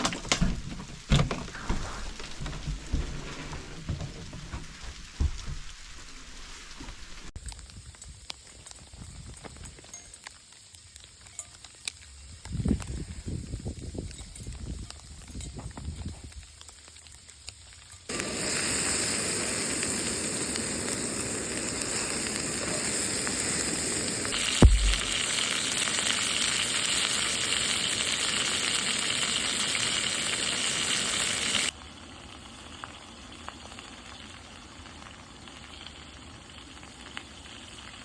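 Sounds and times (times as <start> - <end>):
steak sizzling in a pan: 4.6 - 38.0
sharp knock: 24.6 - 25.1.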